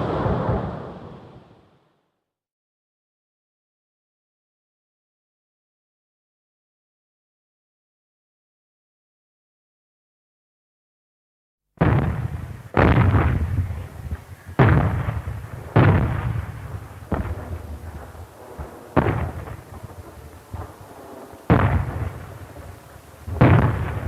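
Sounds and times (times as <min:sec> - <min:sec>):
artillery shots: 0:00.0 - 0:01.6, 0:11.8 - 0:24.0.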